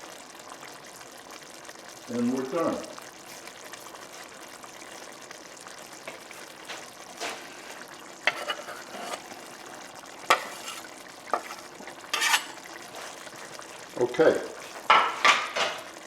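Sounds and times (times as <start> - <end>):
cooking hiss: 0.0 - 16.0
spoon stirring sauce in pot: 5.6 - 14.0.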